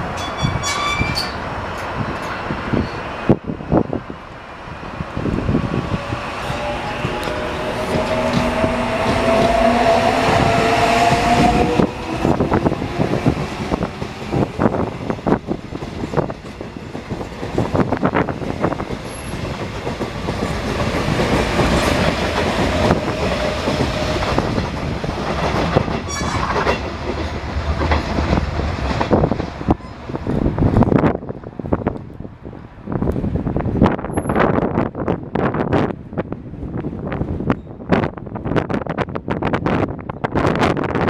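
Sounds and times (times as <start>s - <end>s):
train traction motors whining: 5.2s - 15.5s.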